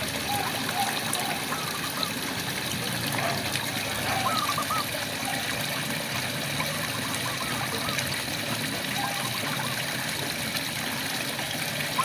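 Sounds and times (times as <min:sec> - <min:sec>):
frogs trilling: 0:00.2 - 0:02.2, 0:03.7 - 0:05.6, 0:06.5 - 0:08.2, 0:08.8 - 0:10.0.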